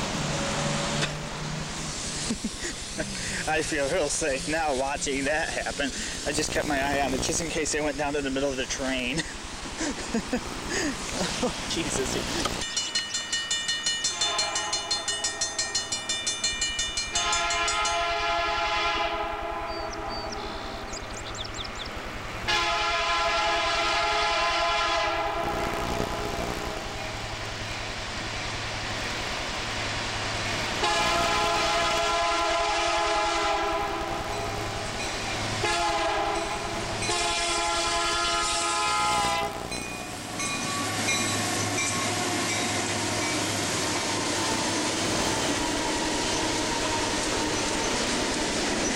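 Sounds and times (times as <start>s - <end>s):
freight train rumbling past: 0.0s - 48.9s
locomotive air horn blasts: 14.1s - 15.2s, 17.1s - 20.1s, 22.5s - 27.0s, 30.8s - 34.7s, 35.6s - 39.8s, 40.6s - 48.4s.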